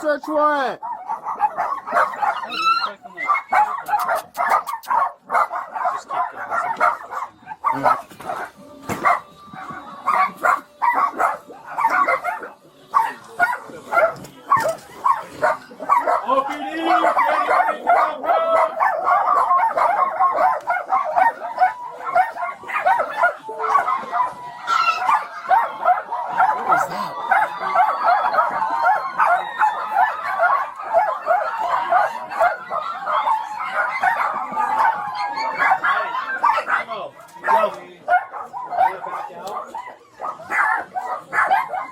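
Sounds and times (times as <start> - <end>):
many dogs barking and yelping: 0.0 - 41.9.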